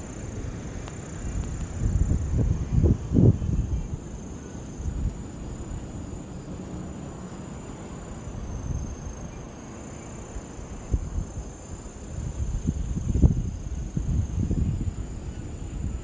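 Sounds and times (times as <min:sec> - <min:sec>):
insects chirring: 0:00.0 - 0:16.0
low outdoor rumble: 0:00.0 - 0:16.0.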